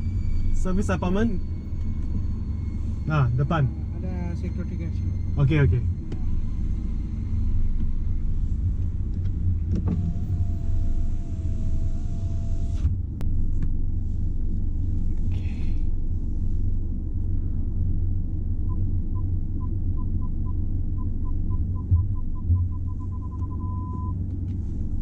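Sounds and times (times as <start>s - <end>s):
car engine and road rumble: 0.0s - 25.0s
electric window motor whining: 9.7s - 13.0s
short beeps: 18.7s - 24.2s.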